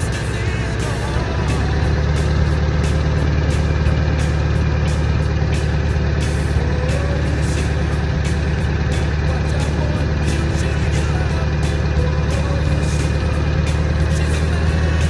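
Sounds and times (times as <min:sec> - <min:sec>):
diesel engine idling: 0:00.0 - 0:15.0
sharp engine ticks: 0:00.0 - 0:15.0.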